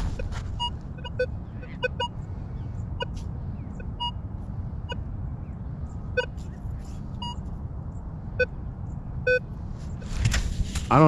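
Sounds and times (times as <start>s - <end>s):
metal detector beeps: 0.1s - 2.2s, 3.8s - 4.2s, 7.2s - 7.4s.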